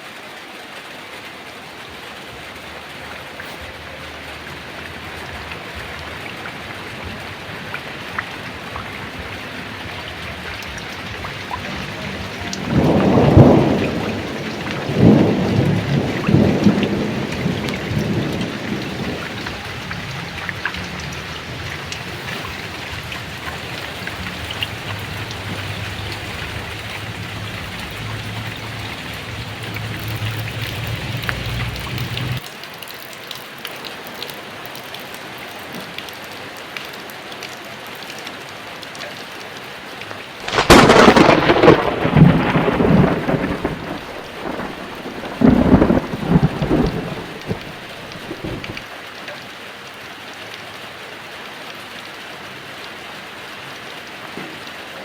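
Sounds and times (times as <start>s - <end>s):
heavy rain falling: 0.0s - 55.0s
rumbling thunder: 5.0s - 32.4s, 40.4s - 48.8s
loud thunderclap: 11.5s - 32.4s, 40.4s - 48.8s.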